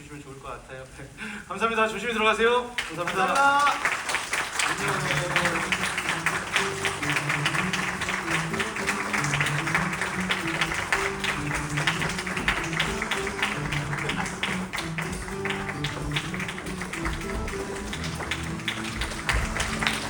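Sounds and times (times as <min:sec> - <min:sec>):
plucked guitar music: 0:04.9 - 0:20.0.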